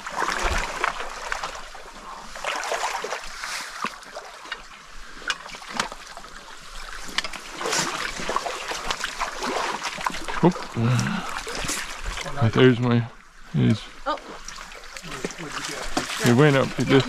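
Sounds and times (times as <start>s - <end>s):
people wading through water: 0.0s - 17.0s
stream water splashing and trickling: 0.0s - 17.0s.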